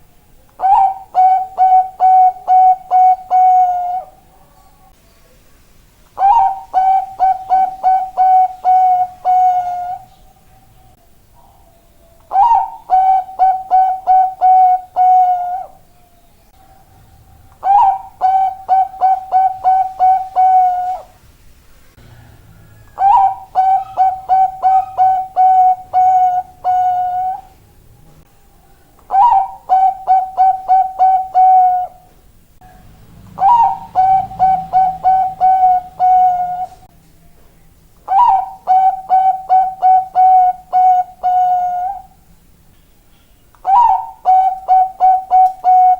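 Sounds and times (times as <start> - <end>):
dove cooing rapidly: 0.6 - 4.4, 6.2 - 10.1, 11.4 - 15.8, 16.6 - 21.2, 22.2 - 27.5, 29.0 - 32.1, 33.3 - 36.9, 38.1 - 42.2, 43.6 - 45.9.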